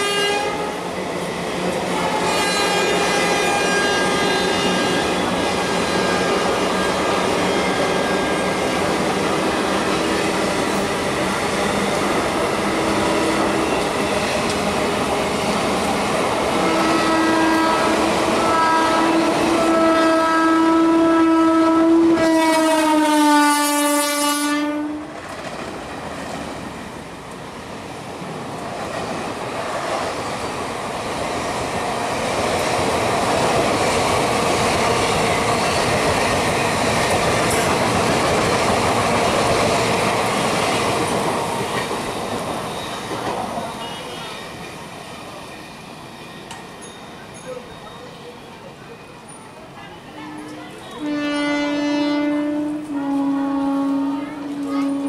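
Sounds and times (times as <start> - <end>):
train horn long blast: 0.0 - 0.8, 1.9 - 8.4, 16.6 - 25.2, 49.9 - 55.0
train coaches clattering over rails: 0.0 - 20.3, 25.1 - 55.0.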